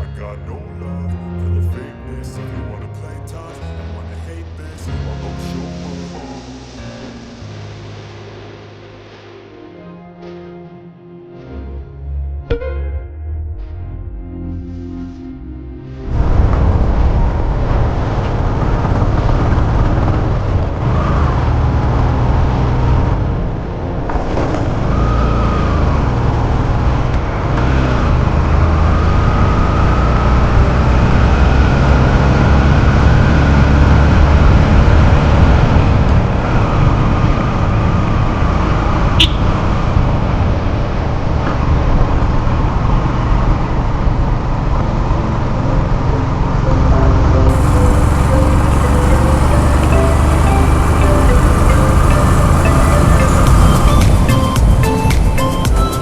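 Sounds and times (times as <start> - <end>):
motorcycle engine rumble: 31.2 - 45.0, 47.2 - 55.9.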